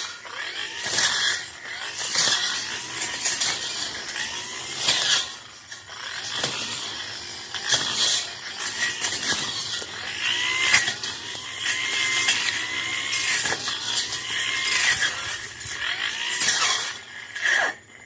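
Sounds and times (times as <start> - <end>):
brush cutter engine: 0.0 - 18.0
blade tearing into brush: 6.0 - 17.8.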